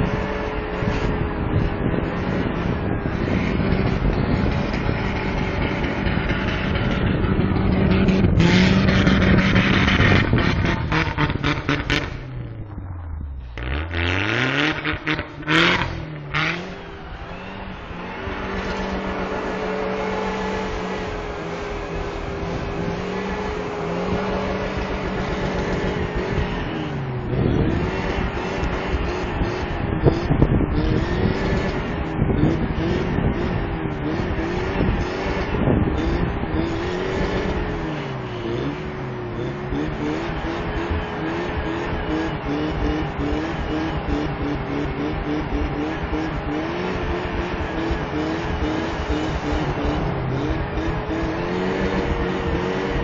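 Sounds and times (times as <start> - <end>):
tires spinning in snow: 0.0 - 53.0
truck engine revving: 0.0 - 53.0.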